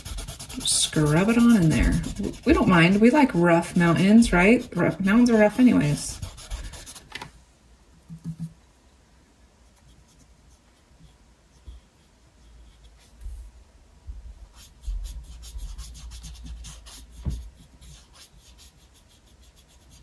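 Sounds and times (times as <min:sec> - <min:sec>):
paintbrush scrubbing on canvas: 0:00.0 - 0:07.1, 0:14.5 - 0:20.0.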